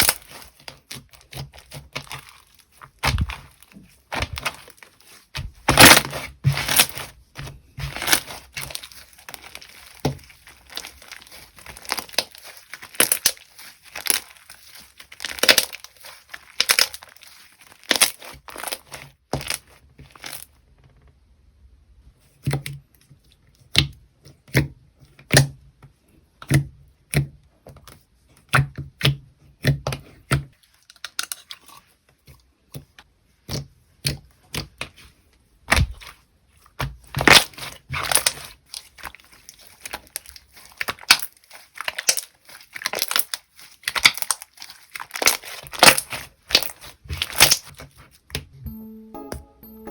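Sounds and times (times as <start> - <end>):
slime crackling and popping: 0.0 - 7.1, 7.8 - 20.4, 37.2 - 47.8.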